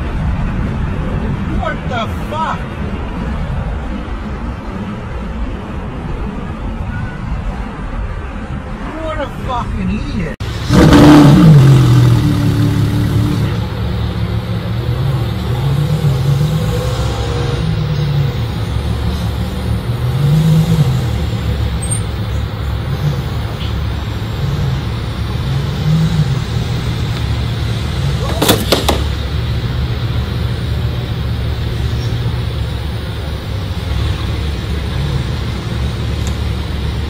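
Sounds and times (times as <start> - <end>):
car engine idling: 10.4 - 37.0
sharp knocks: 28.3 - 29.2.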